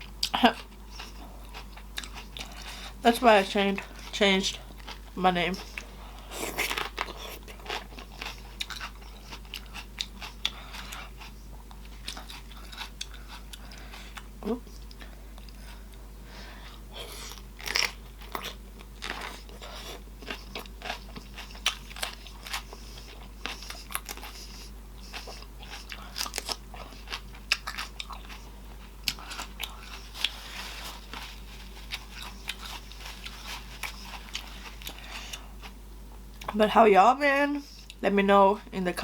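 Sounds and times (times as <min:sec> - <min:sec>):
person chewing and lip smacking: 0:00.0 - 0:02.8, 0:03.9 - 0:16.0, 0:17.0 - 0:36.6, 0:37.7 - 0:38.0.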